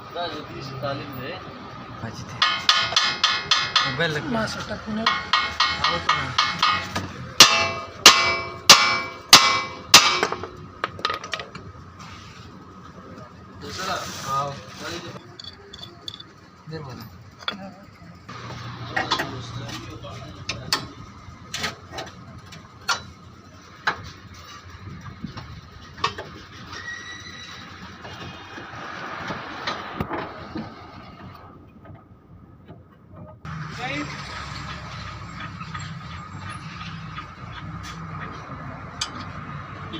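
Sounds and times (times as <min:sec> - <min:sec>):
hammer striking metal: 0:02.4 - 0:04.1, 0:05.0 - 0:10.6
car rattling over rough road: 0:14.8 - 0:39.9.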